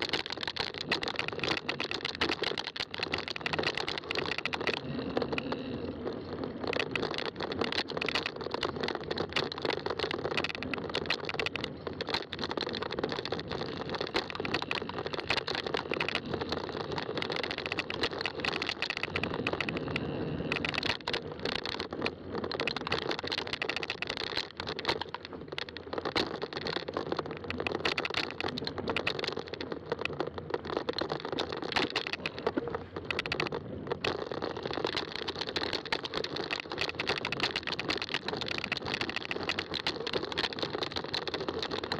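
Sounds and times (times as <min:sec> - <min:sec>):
bike clicking and rattling: 0:00.0 - 0:41.9
bike tires rolling on trail: 0:00.0 - 0:41.9.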